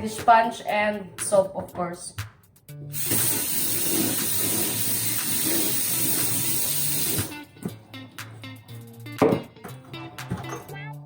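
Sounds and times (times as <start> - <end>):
faint background music: 0.0 - 11.0
water running from a tap: 3.0 - 7.3.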